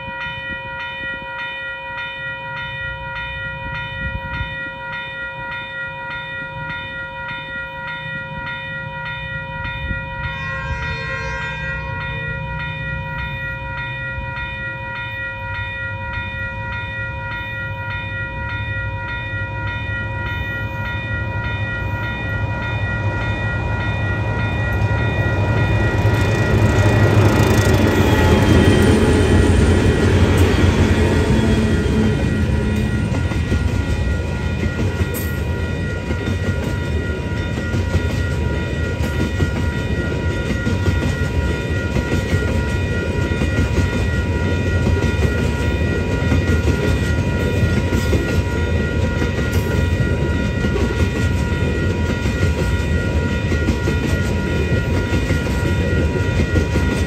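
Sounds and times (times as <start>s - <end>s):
diesel locomotive engines: 0.0s - 57.0s
pulsing ringing tone: 0.0s - 57.0s
train wheels clattering: 23.9s - 57.0s.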